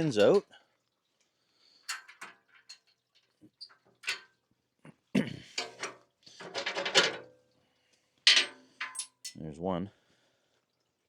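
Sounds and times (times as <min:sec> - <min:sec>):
metal clicks and scrapes: 0:08.3 - 0:09.4.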